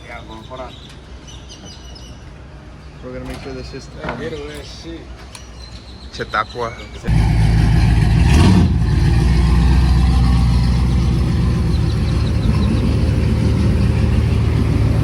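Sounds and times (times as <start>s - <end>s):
truck engine running: 7.1s - 15.0s.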